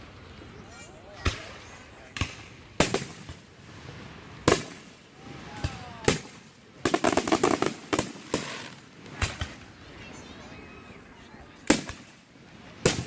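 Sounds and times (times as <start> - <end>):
crackling firework pops: 1.1 - 3.5, 4.4 - 9.8, 11.6 - 12.2, 12.8 - 13.0
firework bangs: 1.1 - 9.8, 11.6 - 13.0.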